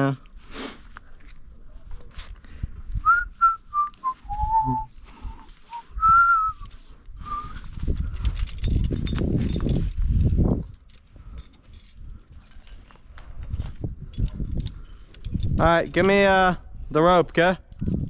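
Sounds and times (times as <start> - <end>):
person whistling a tune: 3.0 - 7.7.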